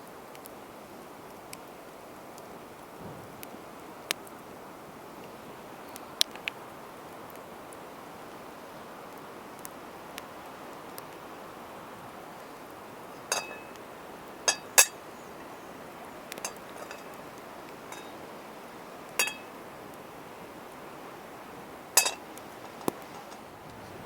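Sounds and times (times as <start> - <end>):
cookware clinking: 13.3 - 13.8, 14.5 - 15.0, 16.4 - 17.2, 17.9 - 18.2, 19.2 - 19.5, 22.0 - 23.5.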